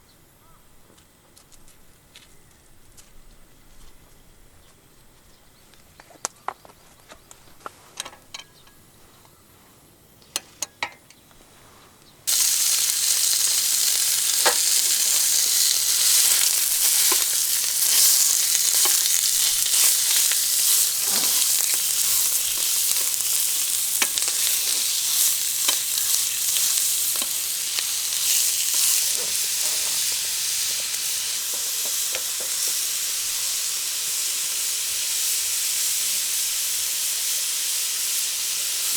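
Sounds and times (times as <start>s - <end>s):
food sizzling in a hot pan: 12.3s - 38.9s.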